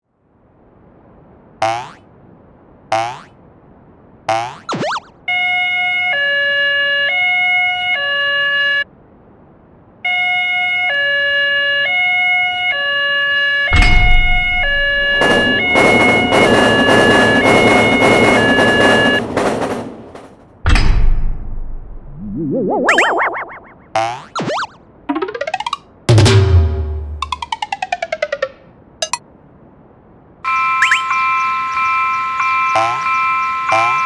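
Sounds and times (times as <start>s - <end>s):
heavy thump: 13.7s - 15.7s
two-tone electronic alarm: 13.7s - 19.2s, 30.5s - 31.4s, 32.0s - 34.0s.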